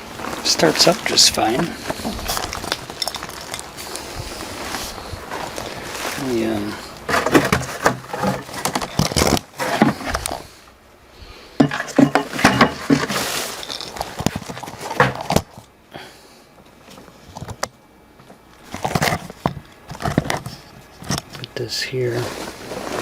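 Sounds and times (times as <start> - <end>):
metal parts clinking: 2.0 - 3.8, 11.8 - 15.4.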